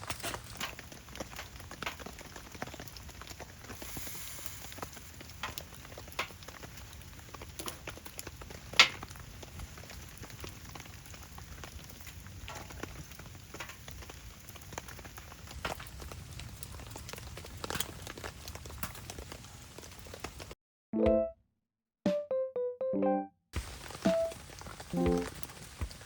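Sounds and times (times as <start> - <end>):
light rain patter: 0.0 - 20.6, 23.6 - 26.0
wood fire crackling and popping: 0.0 - 20.6, 23.6 - 26.0.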